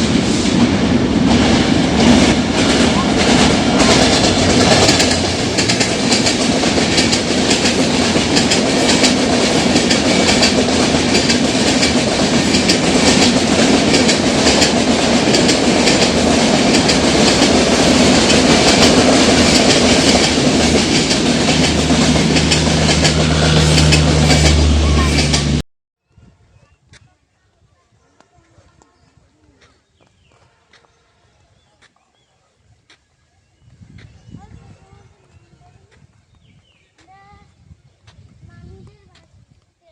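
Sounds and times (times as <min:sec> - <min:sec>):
train wheels clattering on rails: 0:01.3 - 0:25.6.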